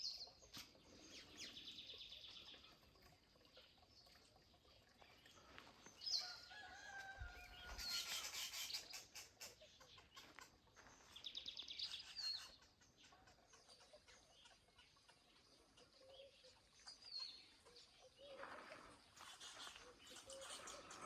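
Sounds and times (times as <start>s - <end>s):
birds chirping: 0.0s - 21.0s
rooster crowing: 6.2s - 7.8s.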